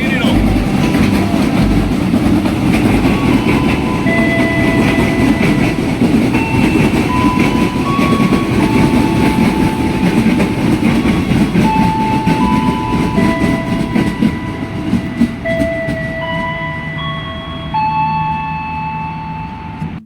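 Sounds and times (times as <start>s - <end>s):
thin whining tones: 0.0s - 20.0s
train rumbling along track: 0.0s - 20.0s.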